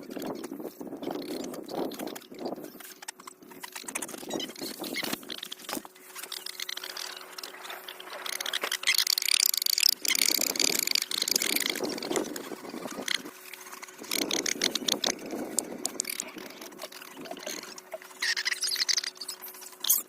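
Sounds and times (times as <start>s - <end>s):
high chirping calls: 15.8s - 20.0s.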